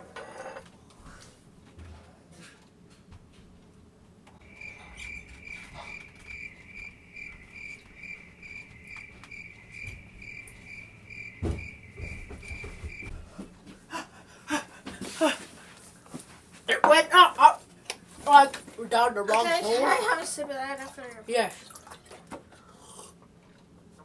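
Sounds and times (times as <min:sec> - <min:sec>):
cricket chirping: 0:04.4 - 0:13.2
low thump: 0:11.3 - 0:13.3.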